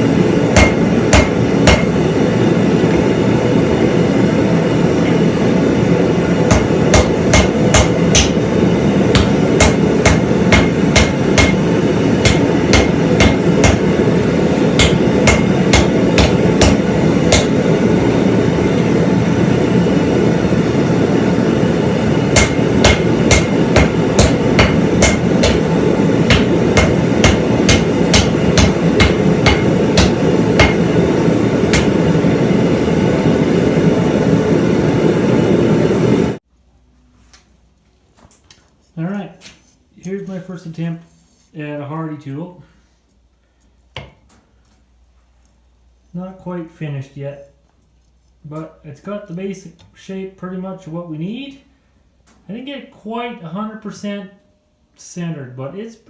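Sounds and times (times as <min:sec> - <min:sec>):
hammer blows on hot steel: 0:00.0 - 0:03.3, 0:05.2 - 0:19.6, 0:20.7 - 0:33.8
forge roaring: 0:00.0 - 0:36.4.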